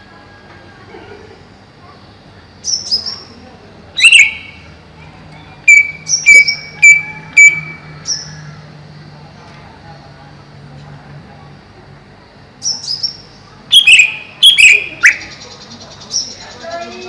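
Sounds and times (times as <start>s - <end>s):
bird whistling calls: 4.0s - 4.7s, 5.7s - 8.5s, 12.6s - 17.0s.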